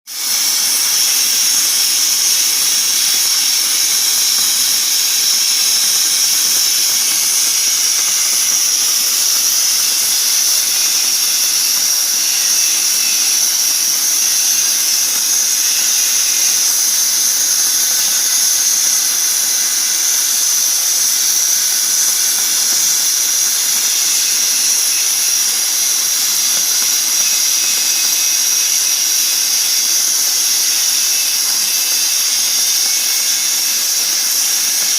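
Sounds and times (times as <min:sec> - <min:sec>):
cutting torch hissing: 0:00.1 - 0:34.9.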